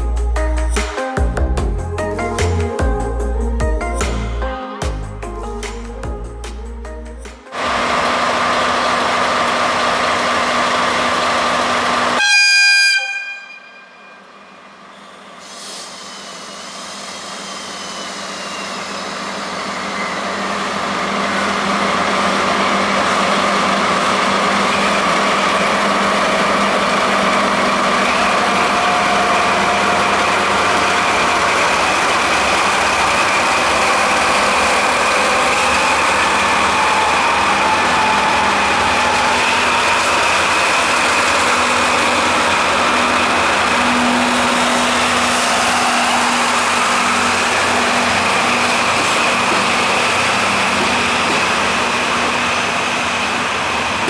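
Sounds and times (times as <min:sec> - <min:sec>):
train running noise: 0:00.0 - 0:54.0
train horn blast: 0:12.2 - 0:14.3.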